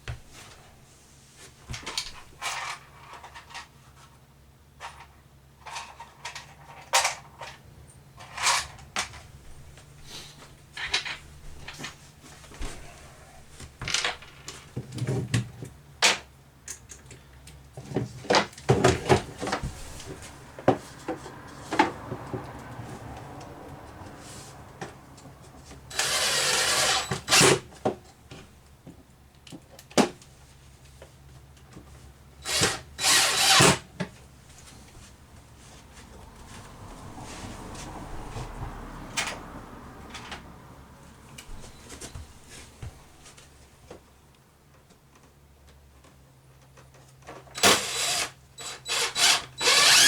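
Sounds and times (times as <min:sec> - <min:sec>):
power drill driving screws: 0:25.9 - 0:27.6, 0:32.4 - 0:33.8, 0:47.6 - 0:50.0.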